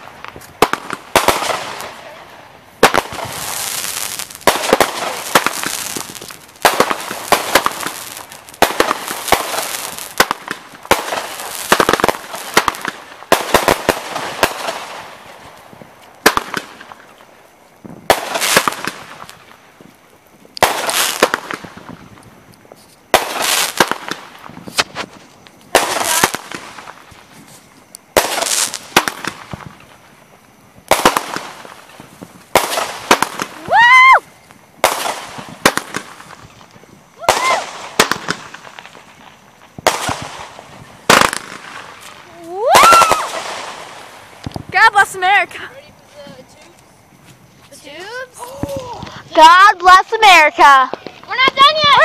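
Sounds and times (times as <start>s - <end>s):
fireworks bangs: 0.0s - 52.0s
fireworks hissing crackling: 0.0s - 52.0s.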